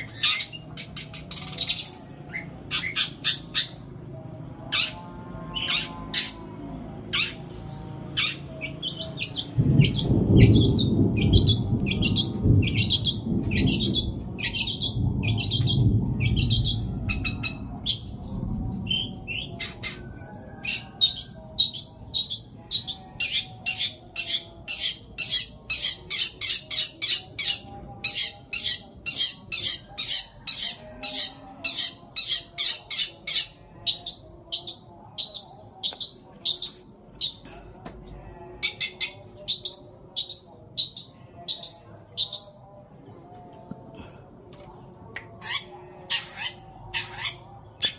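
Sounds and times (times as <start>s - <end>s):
low rumble: 9.4s - 19.8s.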